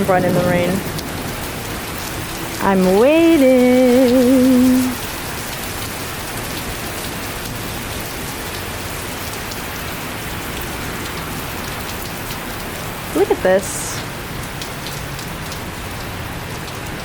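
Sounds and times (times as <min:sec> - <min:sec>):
heavy rain pouring: 0:00.0 - 0:17.0
raindrops ticking: 0:00.0 - 0:17.0.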